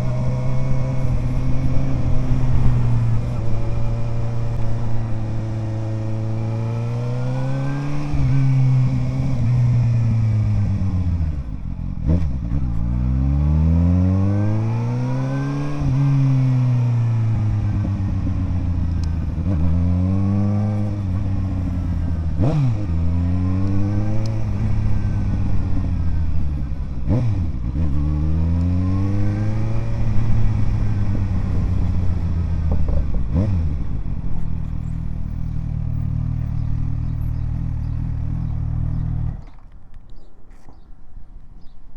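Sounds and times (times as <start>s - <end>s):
motorcycle engine accelerating: 0.0s - 40.8s
quick gear changes: 20.8s - 41.8s.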